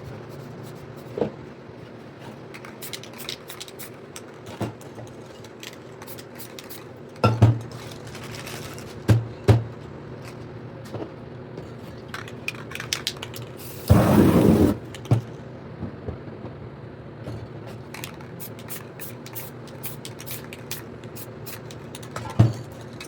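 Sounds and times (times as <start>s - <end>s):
spray cans and tools clattering: 17.9s - 20.8s.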